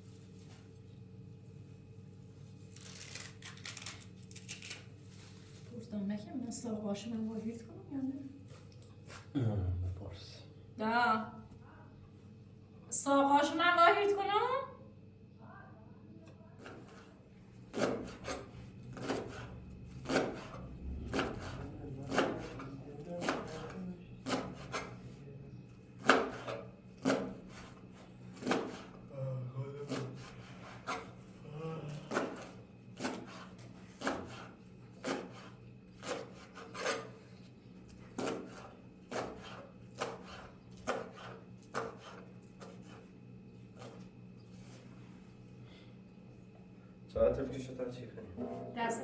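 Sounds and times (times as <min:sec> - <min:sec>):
knife chopping vegetables: 0:16.6 - 0:25.1, 0:25.9 - 0:29.0, 0:29.8 - 0:31.3, 0:31.9 - 0:37.2, 0:37.8 - 0:43.1, 0:43.7 - 0:44.1.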